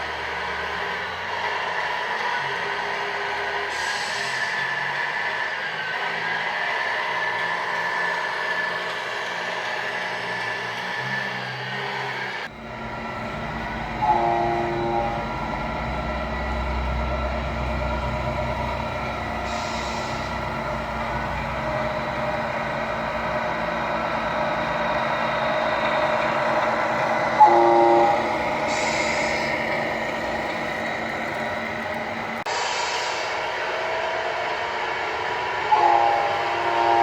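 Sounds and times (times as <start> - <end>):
diesel engine drone: 10.8 - 33.7
air horn blasts: 13.8 - 15.3, 27.4 - 29.5, 35.7 - 37.0.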